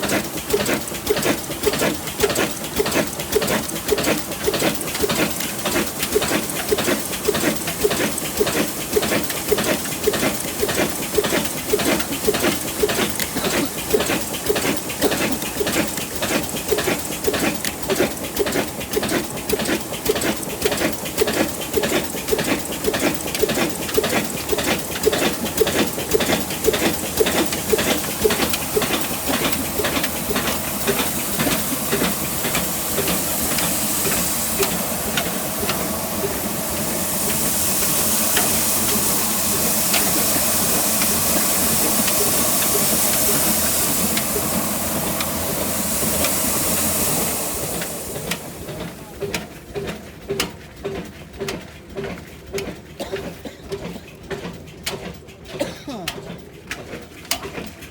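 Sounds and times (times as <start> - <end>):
old engine knocking: 0.0 - 57.9
loud hiss: 30.2 - 48.2.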